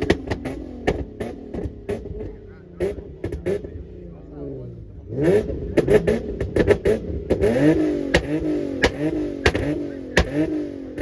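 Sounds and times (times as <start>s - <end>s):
exhaust pops and cracks: 0.0s - 3.8s, 8.1s - 11.0s
car engine revving: 0.0s - 11.0s.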